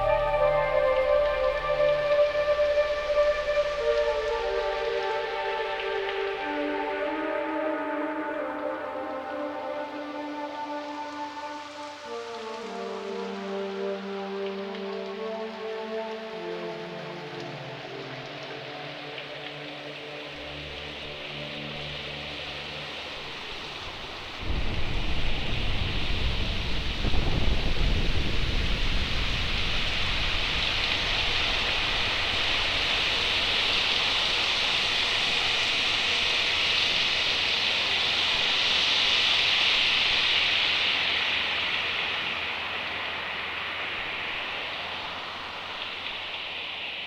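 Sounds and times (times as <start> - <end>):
synthesizer notes: 0.0 - 11.3
steady rain hiss: 0.0 - 47.0
low rumble of thunder: 24.3 - 33.5.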